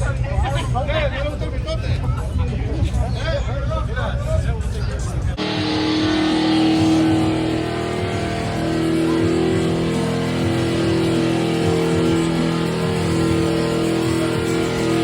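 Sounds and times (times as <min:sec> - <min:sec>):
music: 0:00.0 - 0:15.0
vehicle engine running: 0:05.3 - 0:15.0.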